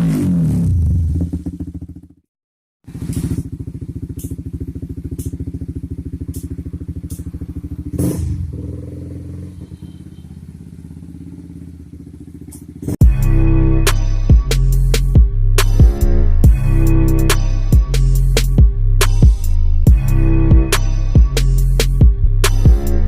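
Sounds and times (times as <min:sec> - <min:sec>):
motorcycle engine idling: 0:01.2 - 0:02.2, 0:02.8 - 0:13.3
music: 0:13.0 - 0:23.0.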